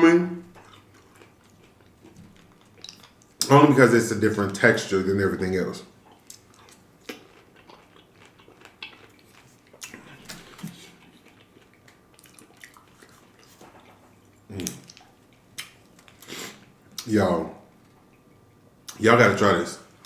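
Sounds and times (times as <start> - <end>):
chewing fruit: 0.4 - 3.5, 5.9 - 17.1.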